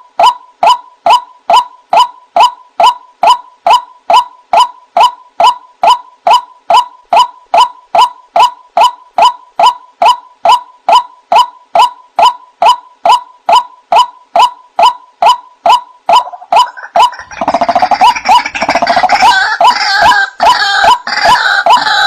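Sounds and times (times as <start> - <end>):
waterhen calling harsh notes: 13.1 - 22.0.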